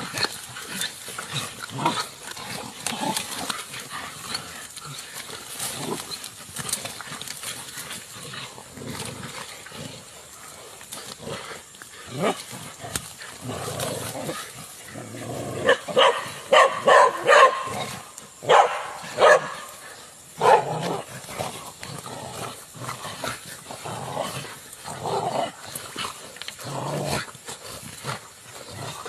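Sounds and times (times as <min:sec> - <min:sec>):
dog barking: 0:15.6 - 0:17.8, 0:18.4 - 0:19.7, 0:20.4 - 0:20.7.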